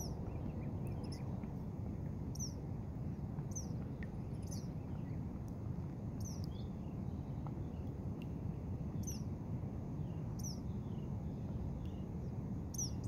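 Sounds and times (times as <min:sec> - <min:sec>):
bird chirping: 0:00.0 - 0:01.2, 0:02.3 - 0:02.6, 0:10.4 - 0:11.0, 0:12.7 - 0:13.0.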